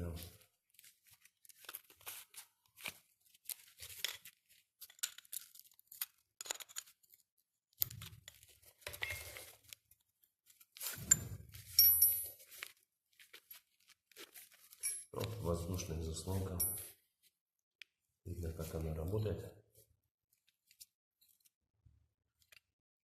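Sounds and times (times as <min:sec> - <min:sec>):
metal parts clicking and scraping: 0:03.5 - 0:07.2, 0:10.8 - 0:12.5.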